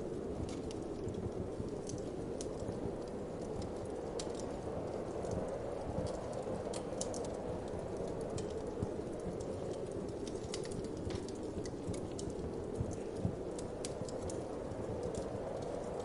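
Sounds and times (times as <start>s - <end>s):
low rush of wind: 0.0s - 16.0s
wood fire crackling and popping: 0.0s - 16.0s.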